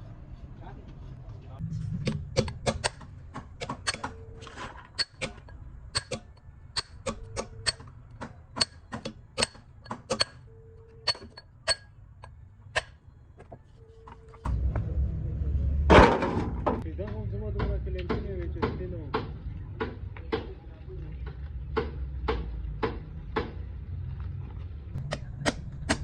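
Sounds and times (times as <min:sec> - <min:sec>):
low steady hum: 0:00.0 - 0:16.8
sharp metallic clicks and taps: 0:02.0 - 0:13.0.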